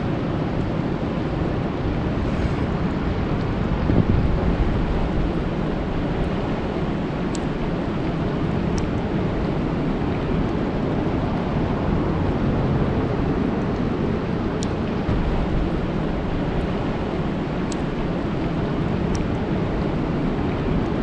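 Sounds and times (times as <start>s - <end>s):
deep rumble: 0.0s - 21.0s
rain falling on a lake: 4.2s - 21.0s
faint high ticks: 17.7s - 17.9s.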